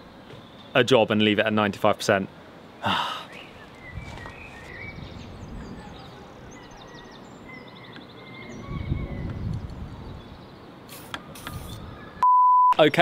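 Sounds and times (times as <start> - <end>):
small birds chirping and trilling: 2.2 - 12.2.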